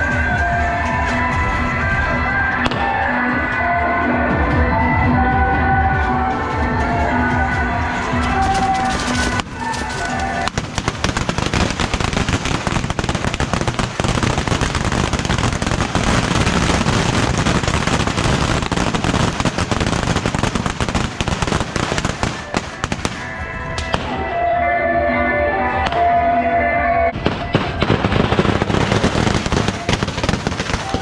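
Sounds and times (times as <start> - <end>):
music: 0.0 - 31.0
crackling fireworks barrage: 5.9 - 24.4, 27.1 - 31.0.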